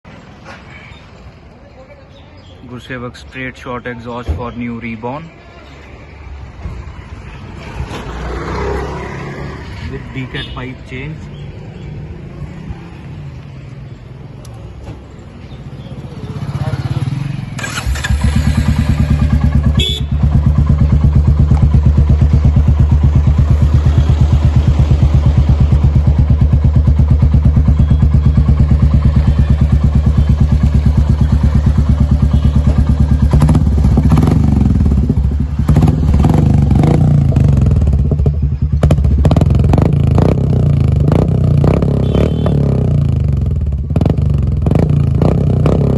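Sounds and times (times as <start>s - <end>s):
motorcycle engine idling: 15.4s - 41.2s, 42.0s - 45.5s.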